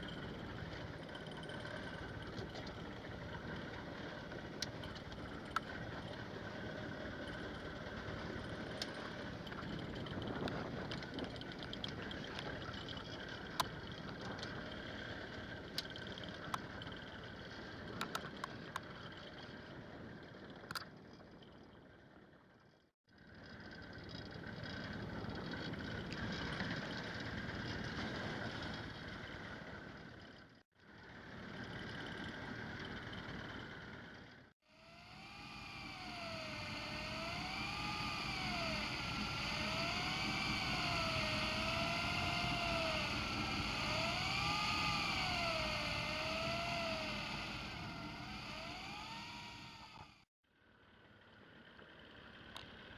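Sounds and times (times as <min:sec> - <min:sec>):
boat engine: 0:34.7 - 0:50.2
wavering mechanical whine: 0:34.7 - 0:50.3
sharp clicks: 0:34.9 - 0:50.2.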